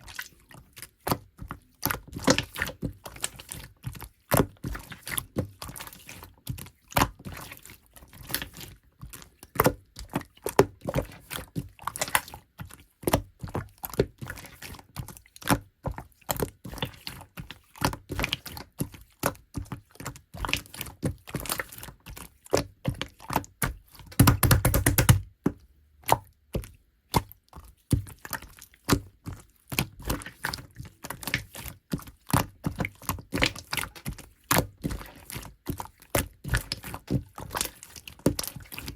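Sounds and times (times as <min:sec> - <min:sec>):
slime squelch: 0:00.0 - 0:38.9
slime popping and clicking: 0:24.2 - 0:25.2.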